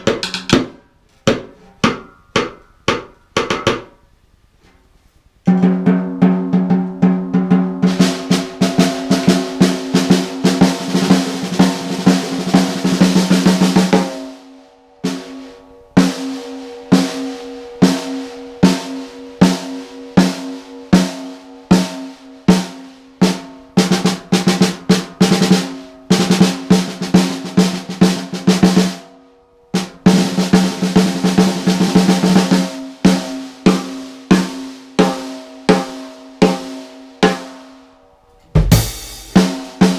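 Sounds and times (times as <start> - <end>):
drum head ringing low: 5.5 - 14.4, 15.0 - 28.9, 38.4 - 39.9
snare drum rolls and strokes: 5.5 - 14.4, 15.0 - 29.1, 29.8 - 37.7, 38.6 - 39.9.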